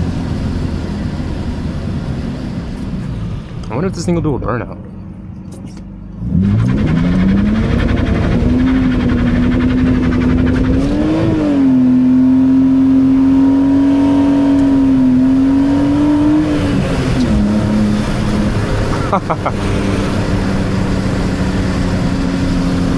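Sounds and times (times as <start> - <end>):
car engine revving high: 6.1 - 22.9.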